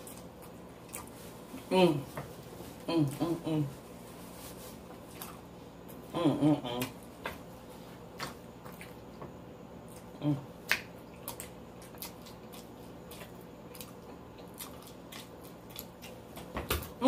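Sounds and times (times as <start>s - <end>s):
person chewing: 0.0s - 17.0s
person humming mm: 2.8s - 3.8s, 6.1s - 7.0s, 10.2s - 10.5s.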